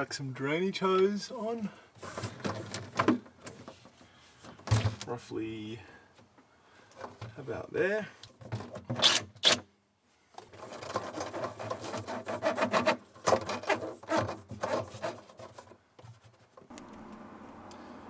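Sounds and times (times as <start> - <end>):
rubbing and scraping strokes: 10.6 - 16.6.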